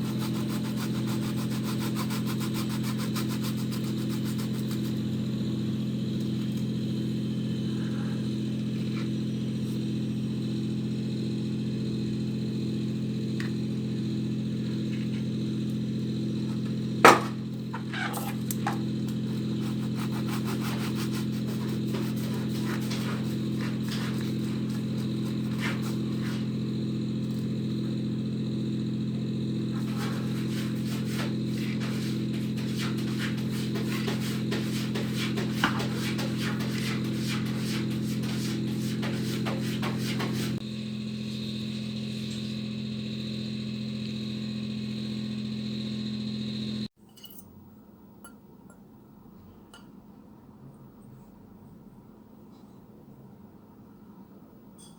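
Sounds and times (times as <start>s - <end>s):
low machine hum: 0.0s - 51.3s.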